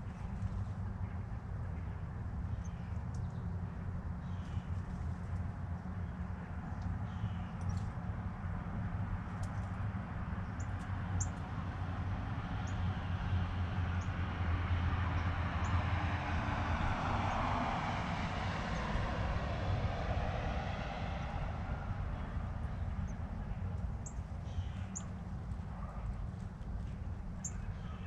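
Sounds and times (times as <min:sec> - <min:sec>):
steady low hum: 0:00.0 - 0:28.0
distant vehicle passing: 0:07.6 - 0:28.0.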